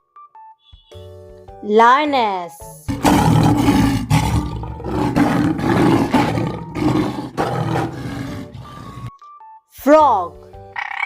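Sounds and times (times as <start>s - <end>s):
lioness roaring: 2.9s - 9.1s.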